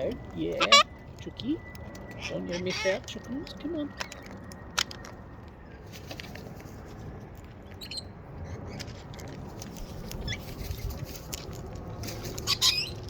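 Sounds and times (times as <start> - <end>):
beaks and claws clicking and scratching: 0.0 - 13.0
low rumbling noise: 0.0 - 13.0
parrot squeaky chirps: 7.8 - 8.1, 12.4 - 13.0.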